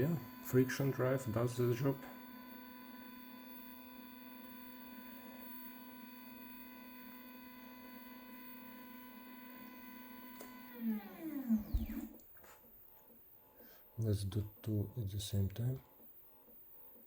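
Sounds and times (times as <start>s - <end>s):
stepper motor whine: 0.0s - 12.2s.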